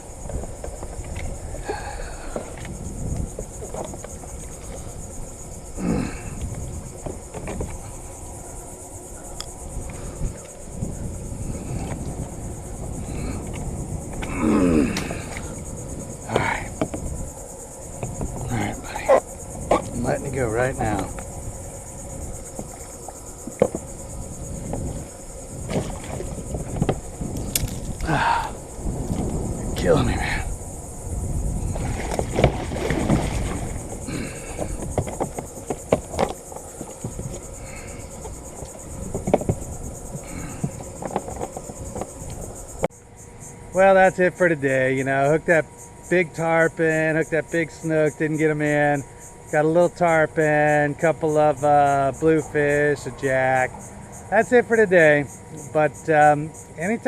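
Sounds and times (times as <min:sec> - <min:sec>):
wind rumble on microphone: 0:00.0 - 0:42.9
insect chorus: 0:00.0 - 0:57.0
man groaning: 0:05.8 - 0:06.3, 0:14.2 - 0:15.3, 0:28.0 - 0:28.6
water knocks and splashes: 0:23.5 - 0:23.8, 0:25.6 - 0:28.0, 0:31.6 - 0:42.1.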